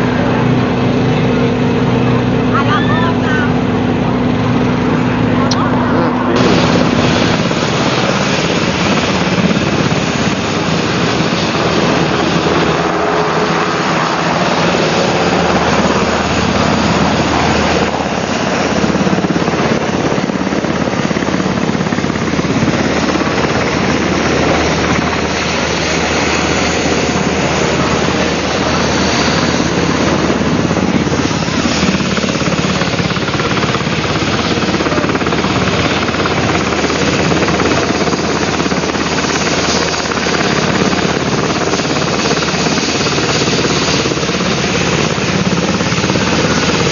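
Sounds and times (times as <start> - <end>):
helicopter engine and rotor: 0.0 - 46.9.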